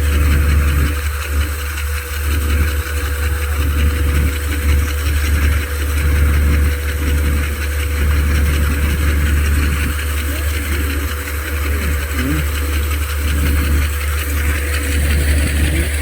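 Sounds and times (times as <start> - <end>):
machinery engine droning: 0.0 - 16.0.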